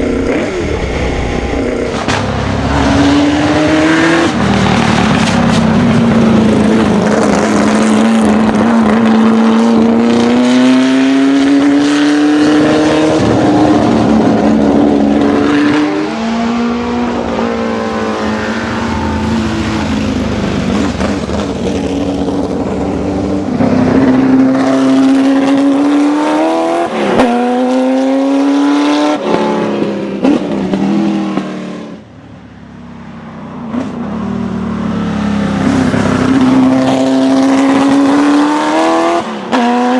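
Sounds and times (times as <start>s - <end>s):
racing engine revving through gears: 0.0s - 32.0s, 33.6s - 39.9s.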